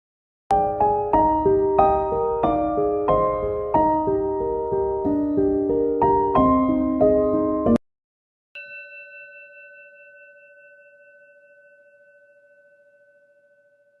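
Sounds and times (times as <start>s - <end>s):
piano music: 0.5s - 7.8s
ringing bell-like tone: 8.6s - 14.0s.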